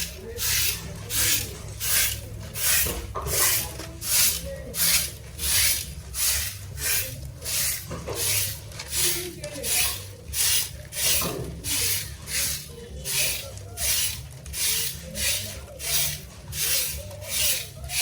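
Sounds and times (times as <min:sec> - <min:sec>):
brush scratching back and forth: 0:00.0 - 0:18.0.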